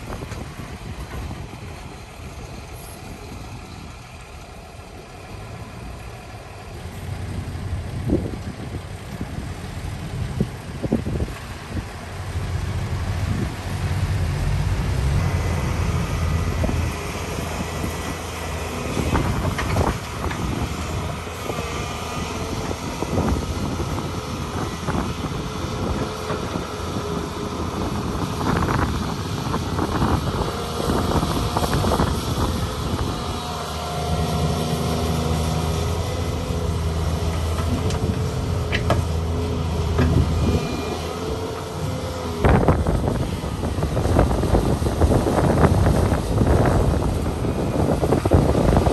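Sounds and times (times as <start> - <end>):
excavator diesel engine working: 0.0 - 48.9
knocks and clunks: 37.2 - 40.7.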